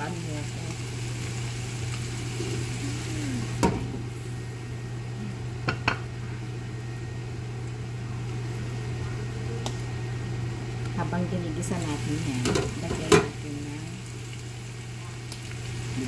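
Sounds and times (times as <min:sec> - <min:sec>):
meat sizzling in a pan: 0:00.0 - 0:04.9, 0:11.4 - 0:16.0.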